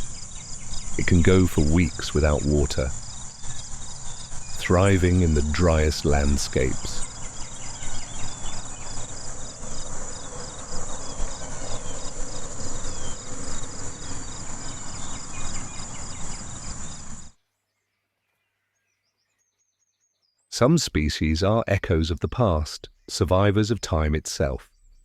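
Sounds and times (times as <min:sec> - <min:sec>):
pulsed insect chirping: 0:00.0 - 0:17.3
insects shrilling drone: 0:00.0 - 0:17.4.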